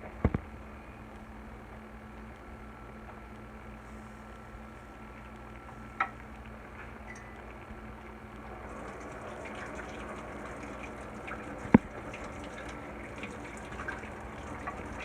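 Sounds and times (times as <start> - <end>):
small popping ticks: 0.1 - 15.0
sauce bubbling in a pot: 3.1 - 15.0.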